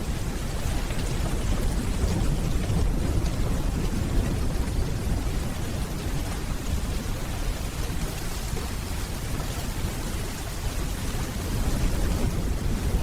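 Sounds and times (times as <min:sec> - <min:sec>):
steady rainfall: 0:00.0 - 0:13.0.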